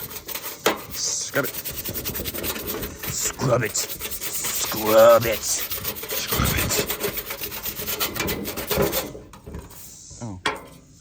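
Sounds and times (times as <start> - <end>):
brush scrubbing: 0.0 - 10.0
person's short vocal sound: 6.2 - 6.8.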